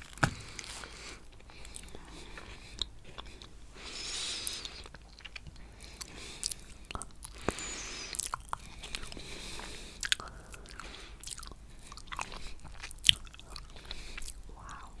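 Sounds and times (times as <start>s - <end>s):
chewing and wet mouth clicks: 4.4s - 15.0s.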